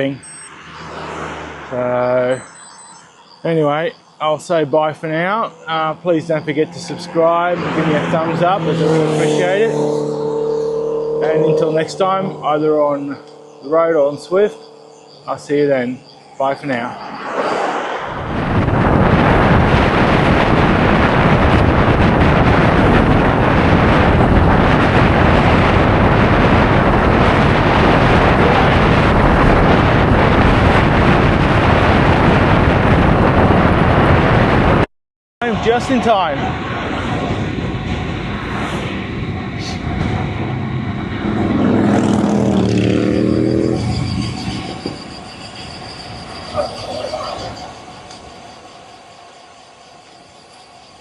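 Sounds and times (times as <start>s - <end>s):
steady rushing noise: 0.0s - 51.0s
vehicle engine running: 5.0s - 16.2s
wind buffeting microphone: 17.8s - 34.9s, 35.5s - 48.5s.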